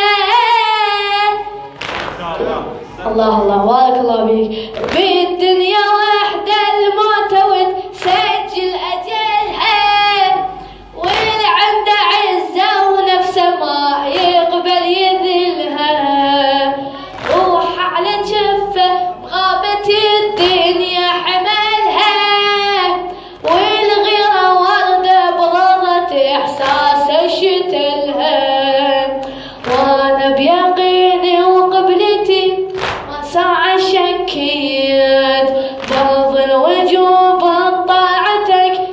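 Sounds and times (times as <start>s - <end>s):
regular sharp beats: 1.7s - 2.8s.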